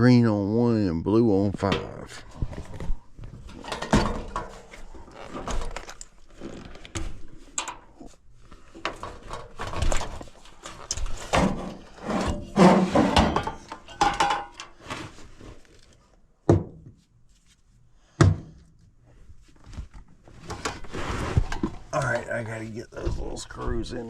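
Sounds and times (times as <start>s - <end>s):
hands handling wiring and metal: 1.6s - 16.2s.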